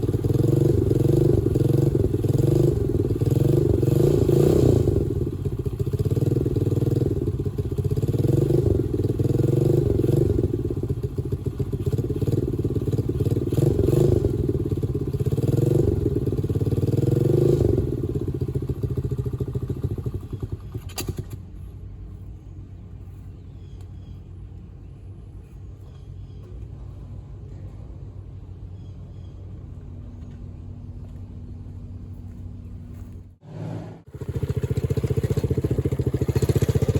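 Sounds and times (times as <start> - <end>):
dirt bike engine revving: 0.0 - 21.4, 33.4 - 36.9
low steady hum: 20.6 - 34.1.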